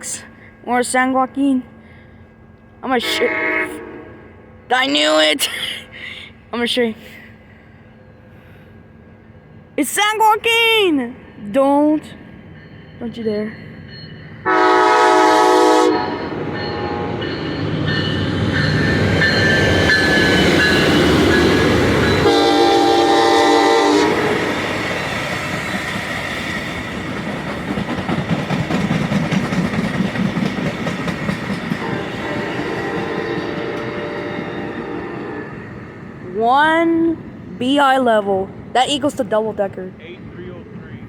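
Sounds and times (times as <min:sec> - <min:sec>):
train rumble: 0:00.0 - 0:41.0
train horn: 0:03.0 - 0:04.5, 0:14.4 - 0:17.3, 0:22.2 - 0:24.6, 0:31.7 - 0:35.7
wheels clattering over rail joints: 0:25.2 - 0:34.0.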